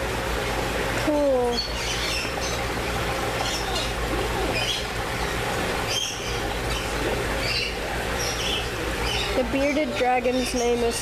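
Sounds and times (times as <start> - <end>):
steady low hum: 0.0 - 11.0
small birds chirping: 1.0 - 11.0
faint background chatter: 6.8 - 11.0.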